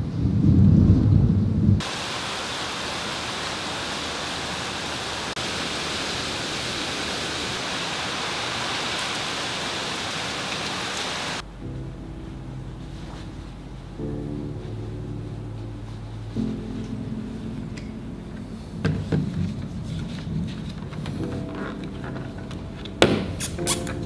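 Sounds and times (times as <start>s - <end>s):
thunder rumble: 0.0s - 21.6s
rain falling: 1.8s - 23.3s.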